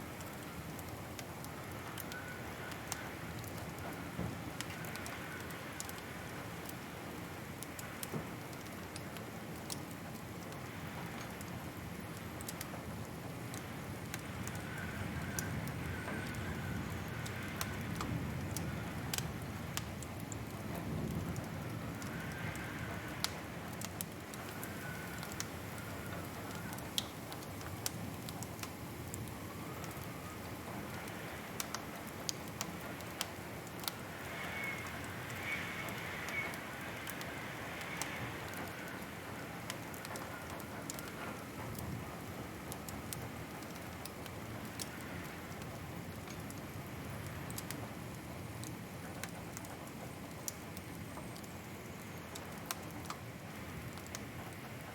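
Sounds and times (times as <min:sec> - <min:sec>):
wood fire crackling: 0:00.0 - 0:54.9
faint wavering whistle: 0:34.4 - 0:36.6.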